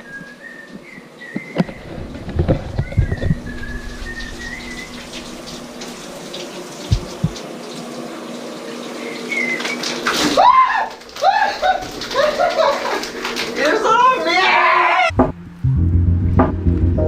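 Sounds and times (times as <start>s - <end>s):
low thumps: 1.6s - 6.1s, 6.9s - 7.4s, 15.1s - 17.0s
steady hiss: 3.1s - 8.8s.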